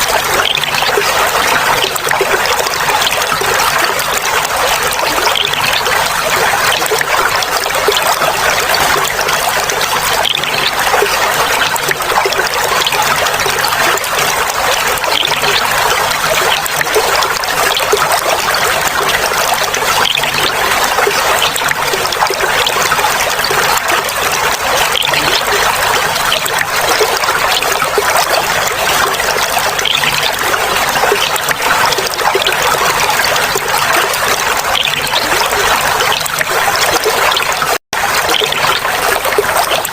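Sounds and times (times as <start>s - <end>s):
water trickling and babbling: 0.0s - 39.9s.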